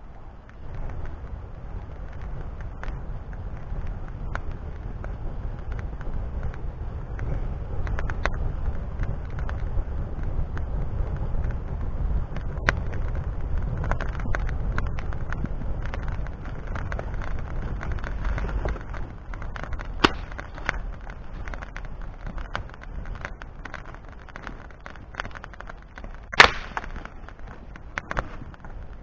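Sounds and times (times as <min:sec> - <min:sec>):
wind rumble on microphone: 0:00.0 - 0:29.0
fire popping: 0:10.6 - 0:29.0
wood fire crackling: 0:12.2 - 0:29.0.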